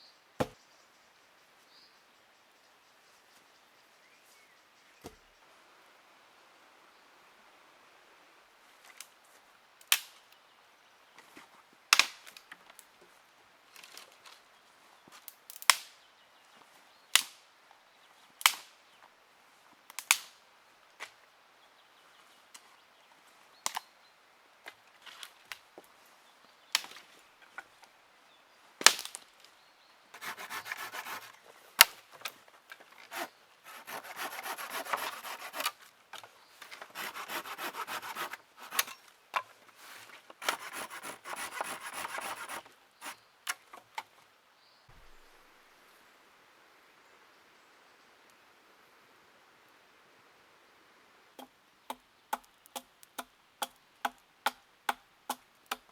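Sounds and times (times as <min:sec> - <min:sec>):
hand saw cutting wood: 0:30.2 - 0:31.9, 0:33.1 - 0:35.8, 0:36.8 - 0:39.0, 0:40.4 - 0:43.2.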